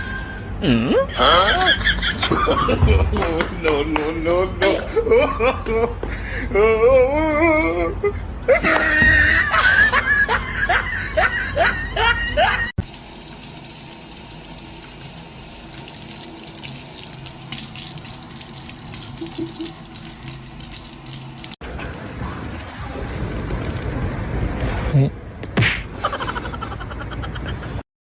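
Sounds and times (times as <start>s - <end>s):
running water: 12.8s - 21.6s.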